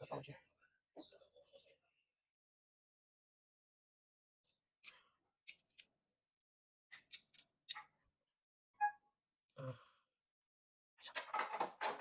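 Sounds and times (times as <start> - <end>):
rapid clatter of parts: 11.1 - 12.0.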